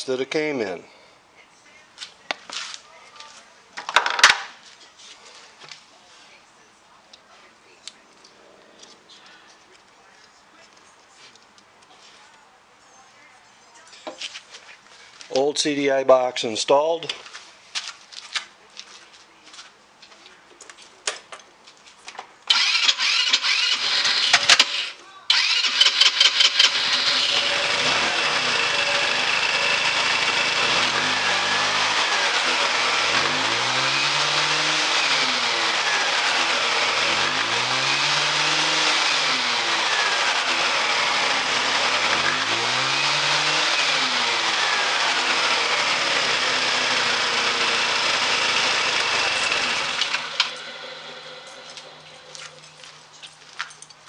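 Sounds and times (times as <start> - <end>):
scooter engine revving: 22.5 - 52.0.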